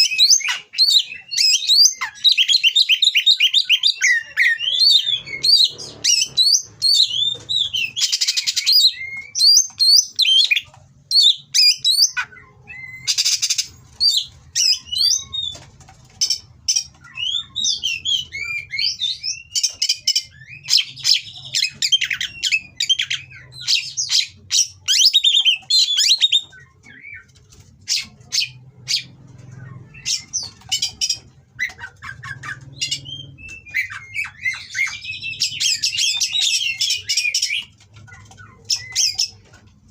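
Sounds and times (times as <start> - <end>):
bird singing whistled song: 0.0 - 15.6, 17.0 - 27.3, 32.3 - 37.7
harsh rasping bird calls: 0.0 - 39.6.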